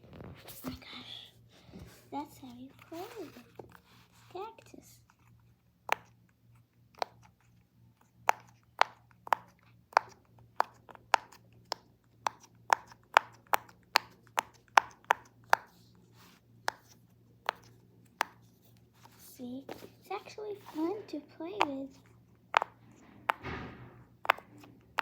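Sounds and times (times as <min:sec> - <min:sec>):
fidget toy popping: 0:08.2 - 0:15.8, 0:19.7 - 0:25.0.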